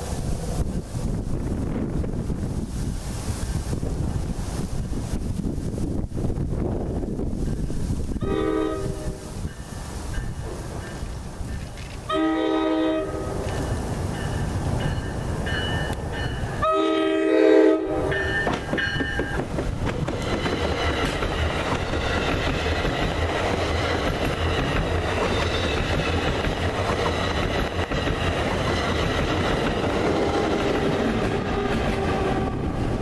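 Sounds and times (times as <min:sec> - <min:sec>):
train rumbling past: 0:00.0 - 0:33.0
train horn chord: 0:08.2 - 0:09.4, 0:12.1 - 0:13.8, 0:16.6 - 0:18.5, 0:31.3 - 0:32.7
wheels clacking over rail joints: 0:18.1 - 0:32.6.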